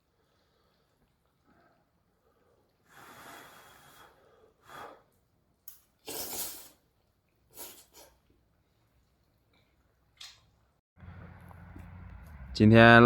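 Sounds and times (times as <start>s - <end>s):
person slurping noodles: 6.0s - 6.9s, 7.5s - 8.2s.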